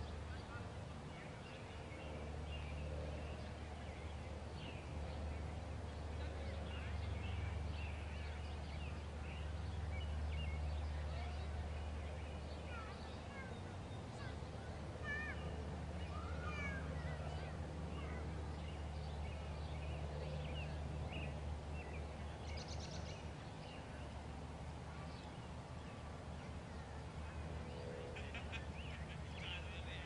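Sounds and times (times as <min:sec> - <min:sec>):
low outdoor rumble: 0:00.0 - 0:30.0
small birds chirping: 0:00.0 - 0:30.0.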